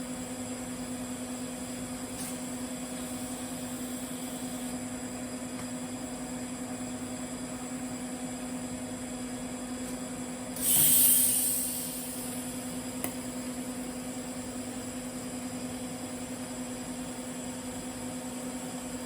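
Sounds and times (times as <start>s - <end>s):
loud hiss: 10.6s - 12.6s
welding arc humming: 10.6s - 13.8s.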